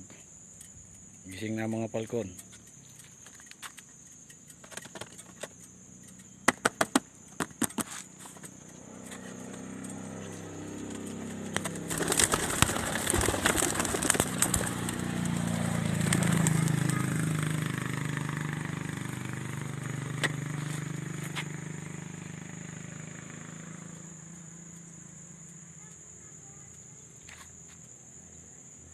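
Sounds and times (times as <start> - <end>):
vehicle engine running: 8.1 - 26.7.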